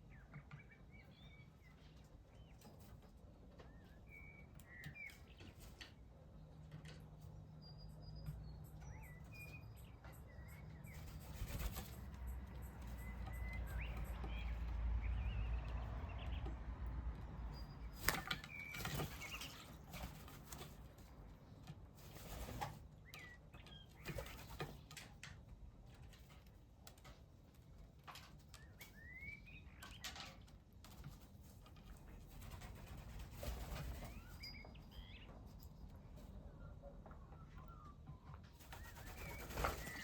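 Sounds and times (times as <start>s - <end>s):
bird chirps: 3.6s - 5.7s, 7.4s - 16.6s, 17.4s - 19.7s, 23.0s - 24.6s, 28.6s - 30.3s, 33.6s - 35.6s, 36.4s - 40.0s
bird wing flutters: 11.0s - 12.1s, 17.9s - 20.8s, 38.6s - 40.0s.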